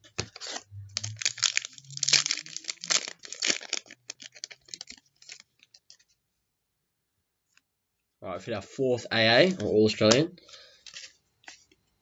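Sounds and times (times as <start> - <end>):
card pack wrapper tearing and crinkling: 0.1 - 6.0, 10.8 - 11.6.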